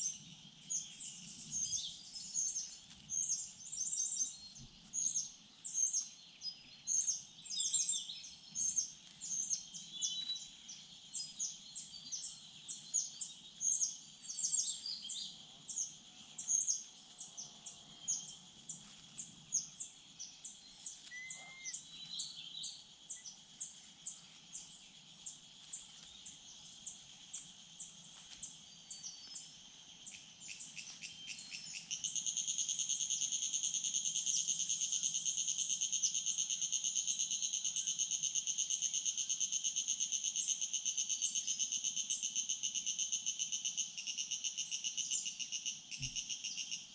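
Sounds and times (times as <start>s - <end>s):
small birds chirping: 0.0s - 46.9s
insect shrill trill: 20.8s - 22.3s.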